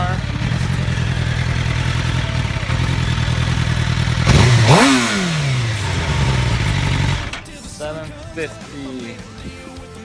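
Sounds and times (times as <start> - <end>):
motorcycle engine revving: 0.0 - 8.7
motorcycle engine idling: 0.0 - 9.7.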